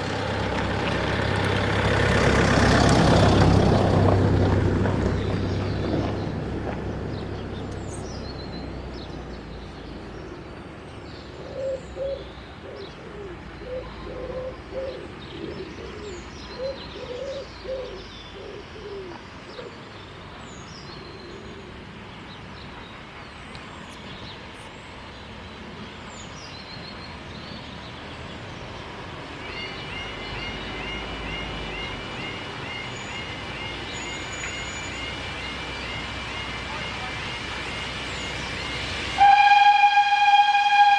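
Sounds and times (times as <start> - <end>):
small birds chirping: 0.0 - 39.0
train passing: 0.0 - 40.9
pigeon cooing: 11.4 - 19.7.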